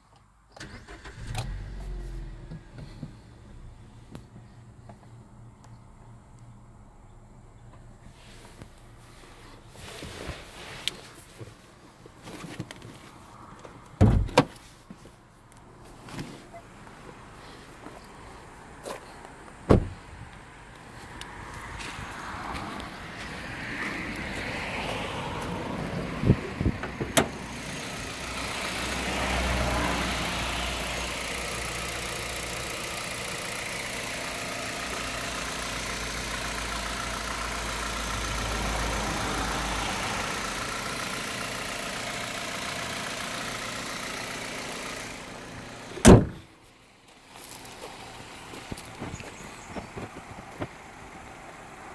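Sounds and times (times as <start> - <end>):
car bonnet shutting thud: 14.0 - 14.5, 19.7 - 20.0, 46.0 - 46.5
car engine idling: 24.0 - 51.9.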